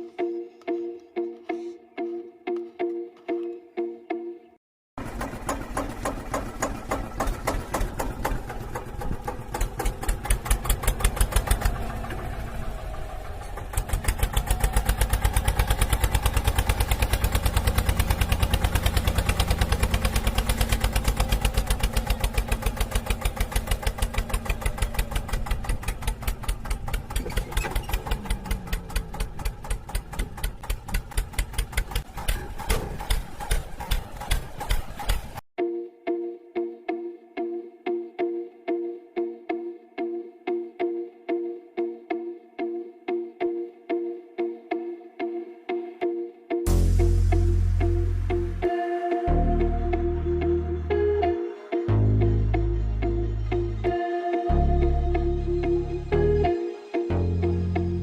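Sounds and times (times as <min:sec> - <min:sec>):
tractor engine thumping: 0:05.0 - 0:35.4.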